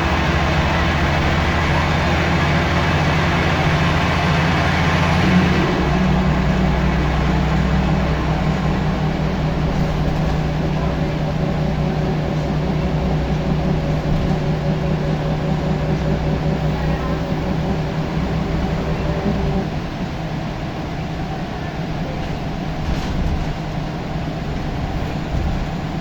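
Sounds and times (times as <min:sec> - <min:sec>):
bus diesel engine running: 0:00.0 - 0:26.0
road and cabin noise: 0:00.0 - 0:26.0.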